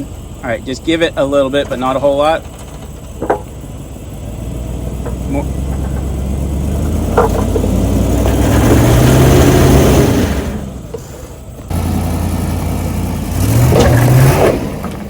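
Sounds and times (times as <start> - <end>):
engine revving under load: 3.2 - 15.0.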